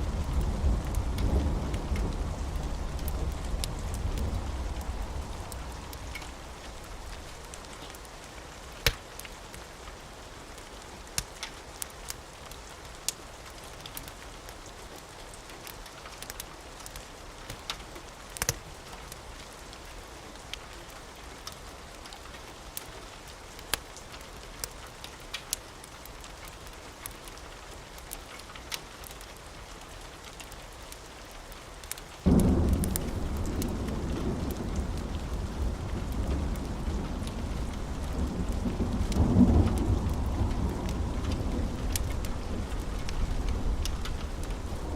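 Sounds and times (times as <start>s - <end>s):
thunder rumbling: 0.0s - 7.6s, 32.2s - 44.9s
steady rain: 0.0s - 44.9s
wood fire crackling: 0.0s - 44.9s.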